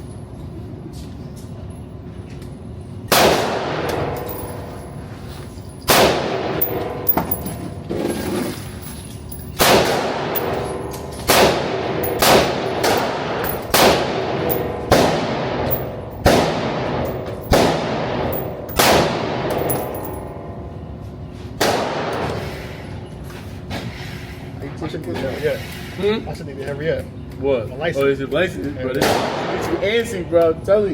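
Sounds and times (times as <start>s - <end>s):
gunshots with ringing tail: 11.3s - 19.5s.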